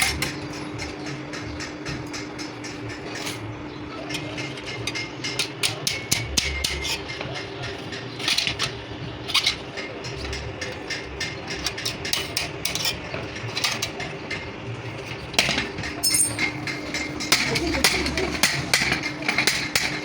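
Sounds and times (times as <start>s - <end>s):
metal tools clinking: 15.9s - 19.5s.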